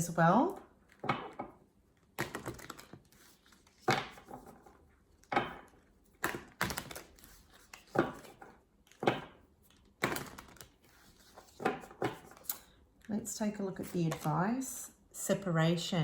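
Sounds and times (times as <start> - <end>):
cards tapping on hard table: 7.9 - 9.4.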